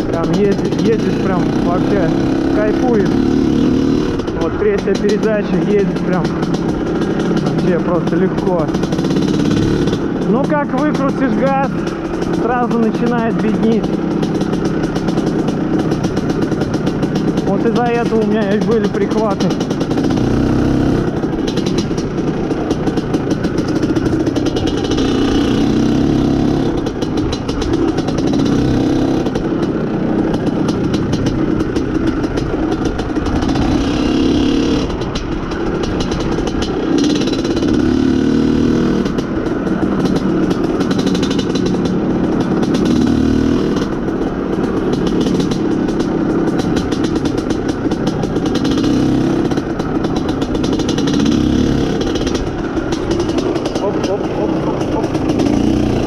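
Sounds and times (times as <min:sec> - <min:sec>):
man talking: 0:00.0 - 0:03.2, 0:04.4 - 0:06.4, 0:07.5 - 0:08.8, 0:10.2 - 0:11.8, 0:12.4 - 0:13.9, 0:17.5 - 0:19.6, 0:53.8 - 0:55.4
two-stroke motorcycle engine revving: 0:00.0 - 0:56.0.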